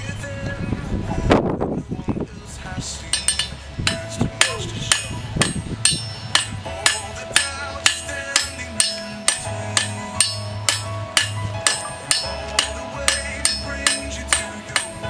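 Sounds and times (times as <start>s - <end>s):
hammer striking steel on anvil: 3.1s - 15.0s.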